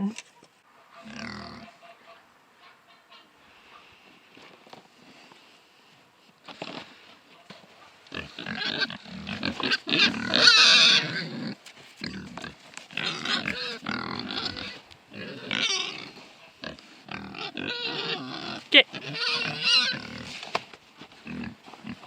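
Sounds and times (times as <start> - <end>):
pigs squealing: 1.0 - 1.9, 8.1 - 20.3.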